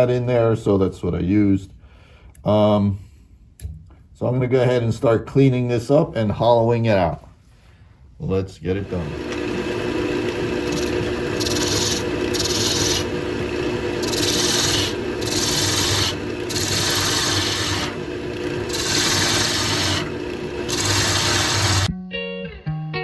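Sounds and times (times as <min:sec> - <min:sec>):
turning tool cutting wood: 0:08.7 - 0:21.9
wood lathe humming: 0:08.7 - 0:21.9.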